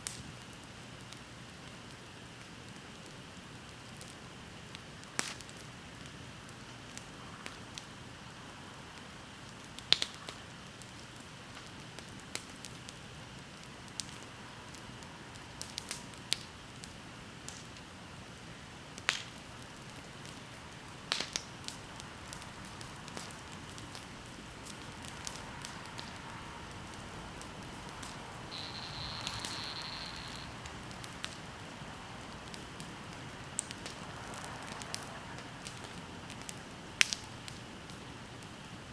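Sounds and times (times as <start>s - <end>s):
bonfire crackling: 0.0s - 38.9s
soft steady hiss: 0.0s - 38.9s
sharp fire pops: 19.0s - 38.0s.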